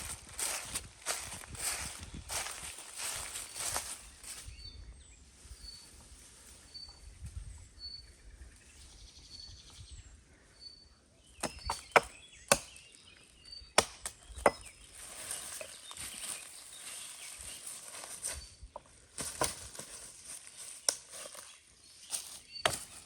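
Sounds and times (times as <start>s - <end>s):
sharp blows on dry wood: 11.4s - 12.9s, 13.7s - 15.8s, 22.1s - 23.0s.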